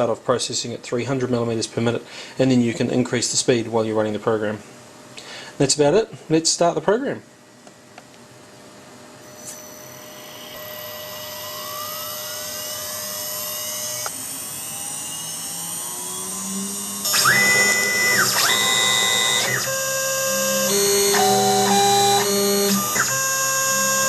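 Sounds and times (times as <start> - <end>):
router spindle whine: 9.2 - 24.0
stepper motors whining: 9.2 - 24.0.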